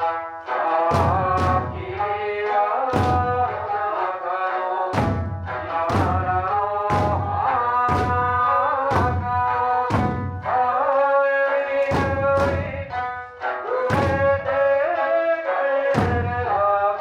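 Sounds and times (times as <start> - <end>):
folk music with lute: 0.0 - 17.0
person singing: 0.0 - 17.0
taiko drums struck together: 0.9 - 2.3, 2.9 - 3.8, 4.9 - 10.8, 11.8 - 13.3, 13.9 - 14.7, 15.9 - 16.8.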